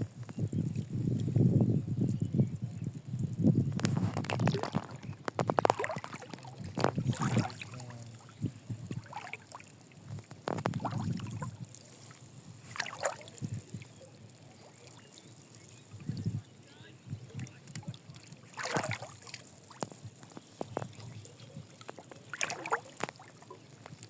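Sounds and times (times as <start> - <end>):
fish thrashing and splashing water: 3.8 - 15.2, 17.7 - 24.0.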